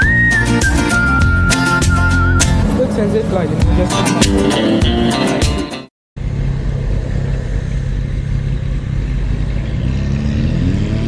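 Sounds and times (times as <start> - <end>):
intro music: 3.5 - 5.9
motorcycle engine cruising: 6.2 - 11.0.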